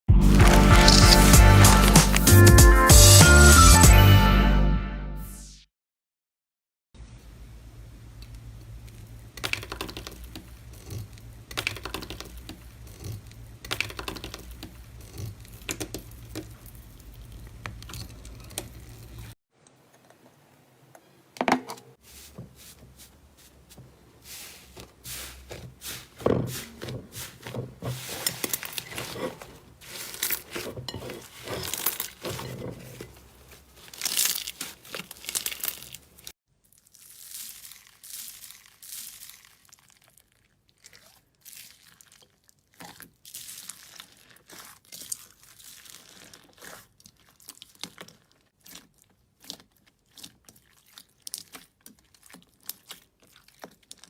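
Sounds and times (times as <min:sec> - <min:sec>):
slime crackling and popping: 0:00.3 - 0:02.3, 0:33.5 - 0:54.0.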